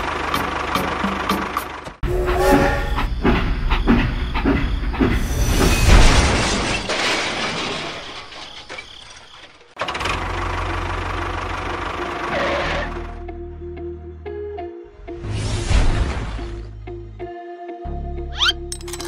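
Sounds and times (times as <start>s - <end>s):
toy train crash: 5.5s - 10.0s, 18.7s - 19.0s.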